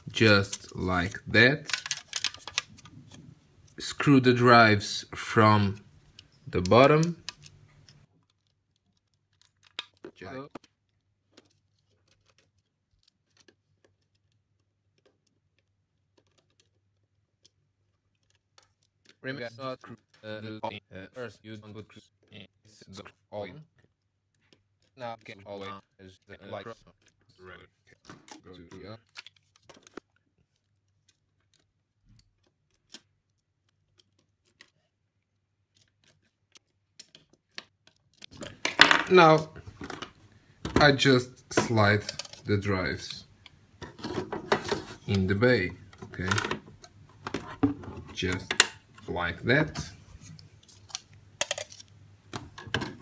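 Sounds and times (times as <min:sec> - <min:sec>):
faint clicks and taps of handling: 0:06.0 - 0:19.2, 0:27.9 - 0:38.8.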